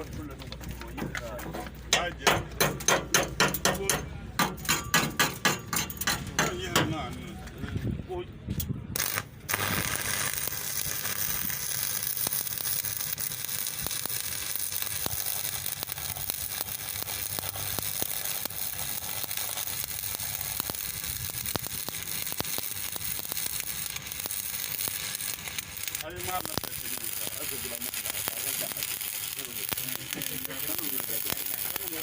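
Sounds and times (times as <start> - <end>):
arc welding sizzle and crackles: 8.9 - 32.0.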